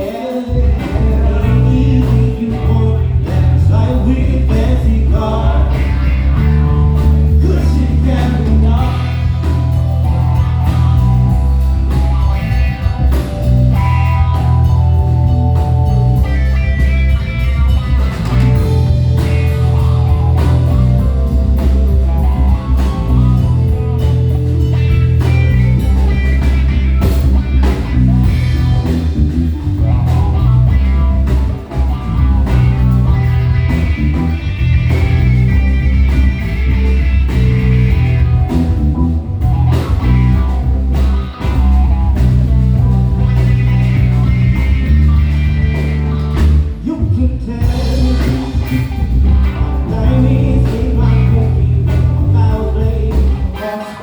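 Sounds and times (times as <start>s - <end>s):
bass guitar: 0.0s - 54.0s
drums: 0.0s - 54.0s
electric guitar: 0.0s - 54.0s
keyboard: 0.0s - 54.0s.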